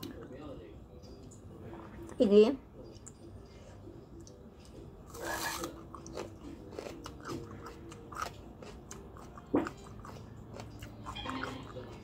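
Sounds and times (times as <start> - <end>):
person chewing crunchy shallot: 5.1 - 12.0.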